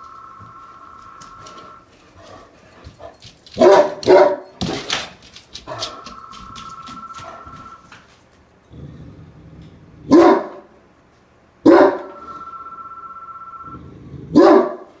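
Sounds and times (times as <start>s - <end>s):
dog barking angrily: 3.6s - 5.1s, 10.1s - 10.7s, 11.6s - 12.2s, 14.3s - 15.0s.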